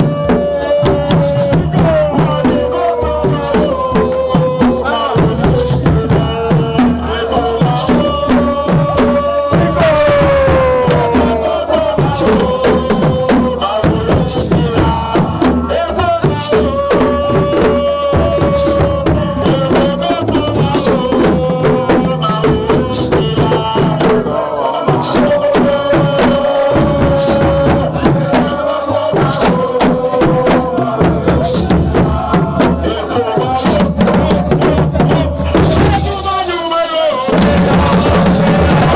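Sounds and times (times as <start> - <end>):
drums with chanting voices: 0.0 - 38.9
long held note: 9.8 - 11.7.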